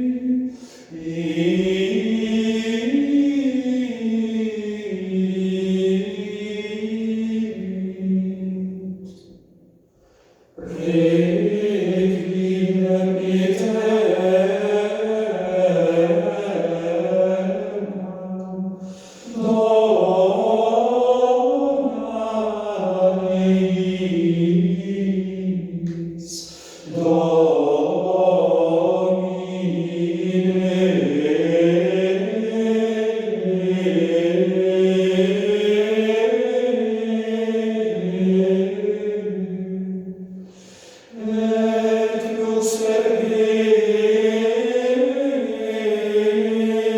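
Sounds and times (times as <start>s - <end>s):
choir singing over loudspeakers: 0.0s - 9.4s, 10.6s - 46.9s.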